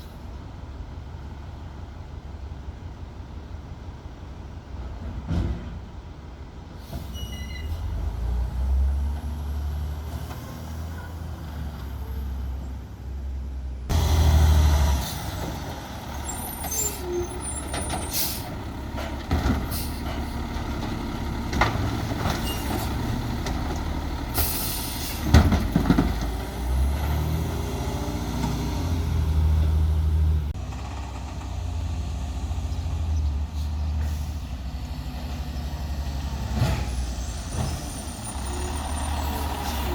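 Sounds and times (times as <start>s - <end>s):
air brakes hissing: 6.8s - 7.9s, 16.2s - 18.6s, 19.6s - 20.3s, 24.3s - 25.3s, 33.5s - 34.6s
garbage truck diesel engine running: 13.9s - 39.9s.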